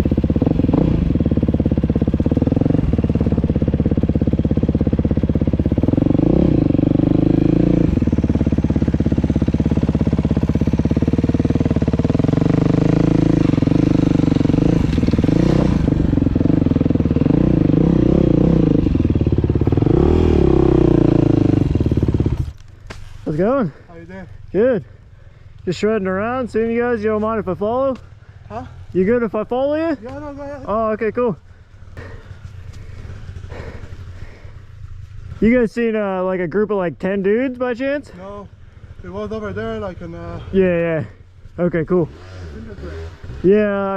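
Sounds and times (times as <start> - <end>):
dirt bike engine revving: 0.0 - 22.6, 30.3 - 35.6, 38.6 - 43.9.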